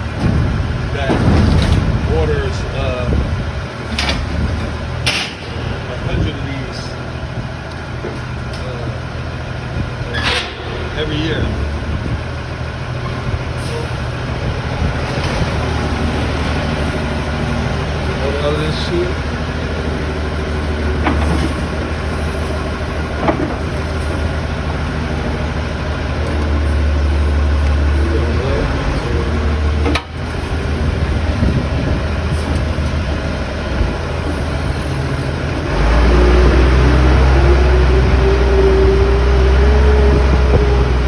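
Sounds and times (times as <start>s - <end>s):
forklift engine running: 0.0s - 41.0s.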